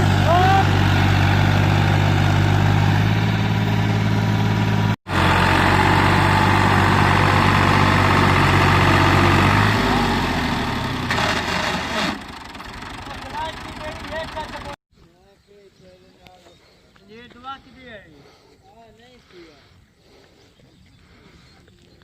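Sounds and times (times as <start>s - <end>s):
tractor diesel engine running: 0.0s - 14.8s.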